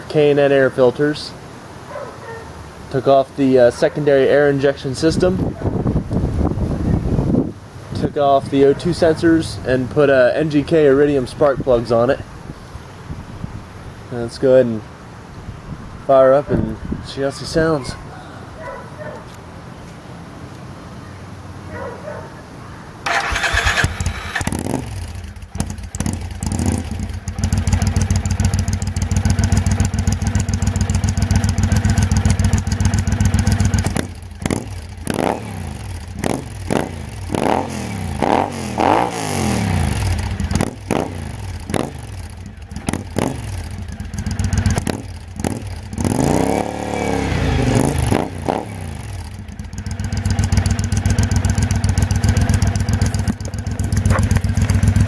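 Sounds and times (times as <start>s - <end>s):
motorcycle engine revving: 23.0s - 55.0s
motorcycle engine starting: 23.0s - 55.0s
motorcycle engine idling: 23.1s - 37.3s, 39.7s - 46.2s, 47.0s - 55.0s.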